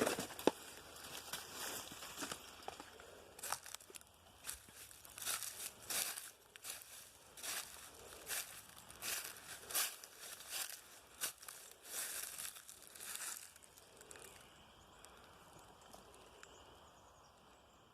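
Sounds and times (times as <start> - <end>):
footsteps crunching through dry leaves: 0.0 - 14.1.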